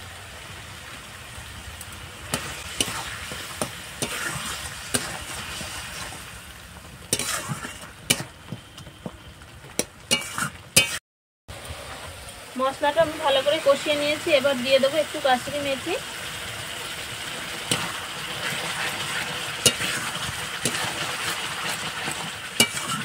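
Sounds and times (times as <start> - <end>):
spice paste sizzling in oil: 0.0 - 11.0, 11.8 - 23.0
metal spatula scraping a pan: 2.3 - 6.3, 7.1 - 8.3, 10.1 - 11.0, 17.6 - 23.0
spatula clinking against pan: 22.6 - 23.0.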